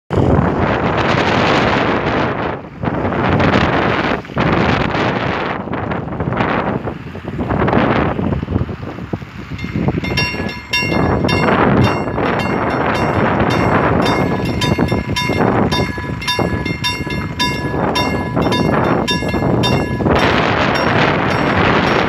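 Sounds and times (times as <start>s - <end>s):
train wheels rumbling on rails: 9.5s - 22.0s
level crossing bell ringing: 9.6s - 22.0s.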